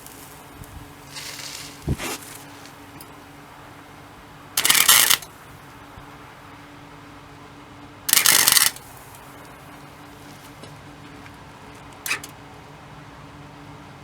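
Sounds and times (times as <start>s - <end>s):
welding crackling on sheet metal: 0.0s - 3.1s, 4.6s - 5.3s, 8.1s - 9.4s.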